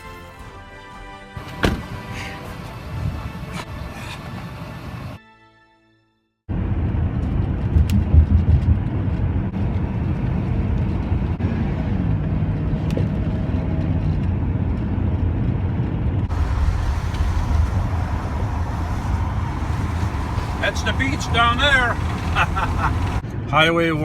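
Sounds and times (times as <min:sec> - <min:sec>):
van engine and tyre rumble: 0:06.5 - 0:24.0
road hiss: 0:16.3 - 0:23.2.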